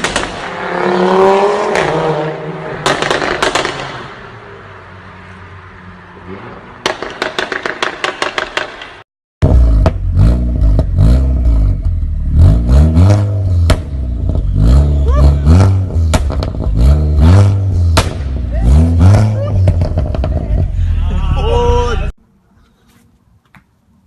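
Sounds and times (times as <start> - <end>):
exhaust pops and crackles: 0.0 - 0.5, 2.8 - 4.0, 6.8 - 11.0, 16.0 - 16.8, 17.9 - 18.4, 19.4 - 20.6
engine revving: 0.2 - 4.2, 9.4 - 21.1
exhaust cracks: 6.8 - 20.9.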